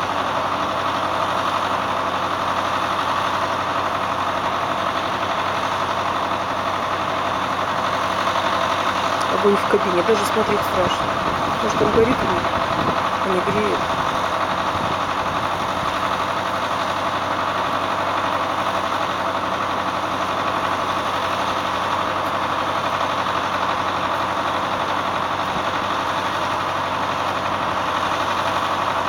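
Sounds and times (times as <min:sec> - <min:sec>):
tractor engine idling: 0:00.0 - 0:29.0.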